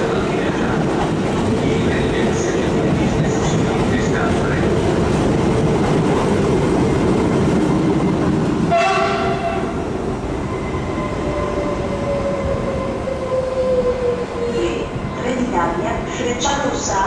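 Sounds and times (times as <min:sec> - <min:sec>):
train wheels rumbling on rails: 0:00.0 - 0:17.0
train horn blast: 0:08.7 - 0:09.8.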